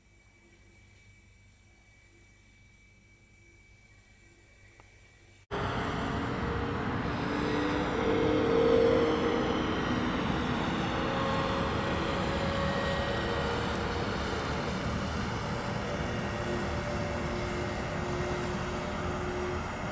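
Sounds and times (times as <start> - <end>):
loud steady rushing noise: 5.5 - 19.9.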